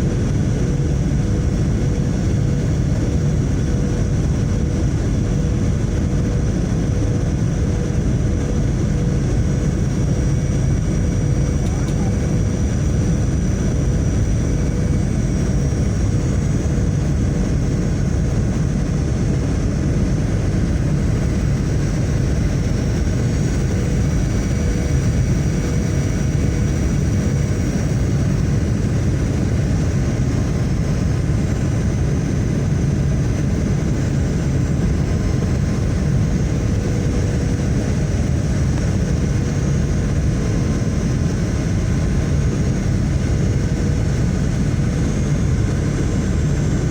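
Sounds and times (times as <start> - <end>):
airliner engines rumbling: 0.0 - 46.9.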